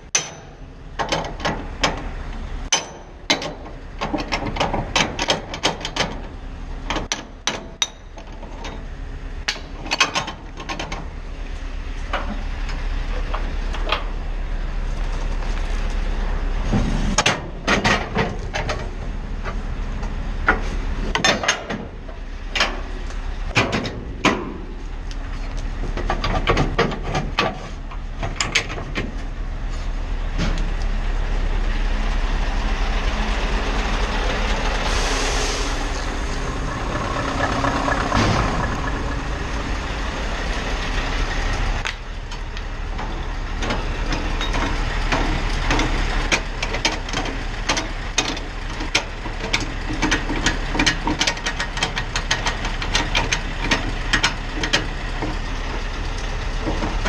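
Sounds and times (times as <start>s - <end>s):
clicks and rattles in cab: 0.0s - 11.1s, 17.2s - 22.9s, 23.5s - 24.7s, 25.5s - 29.3s, 41.8s - 55.5s
truck engine drone: 0.0s - 57.0s
air hiss: 34.7s - 41.0s.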